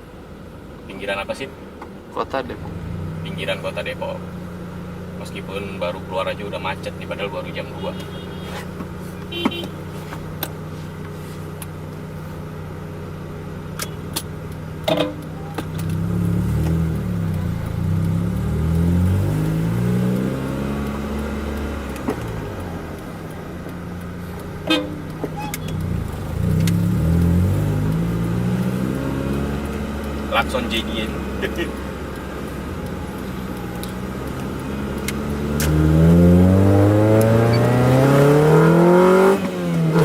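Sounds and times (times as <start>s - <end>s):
car engine accelerating: 0.0s - 40.0s
car horn toot: 7.2s - 10.0s, 24.6s - 25.8s.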